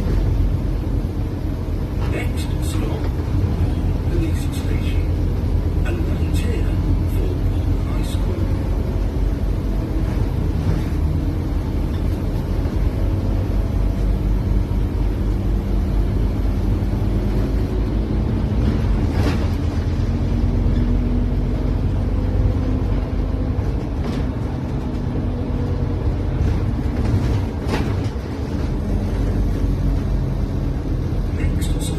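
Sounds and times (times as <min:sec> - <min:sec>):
bus engine rumble: 0:00.0 - 0:31.9.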